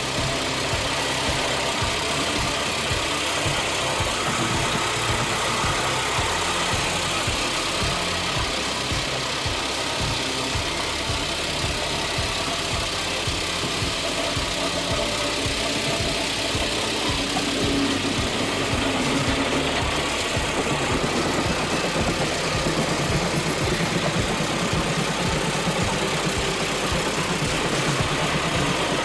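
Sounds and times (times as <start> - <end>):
large machine engine running: 0.0 - 29.0.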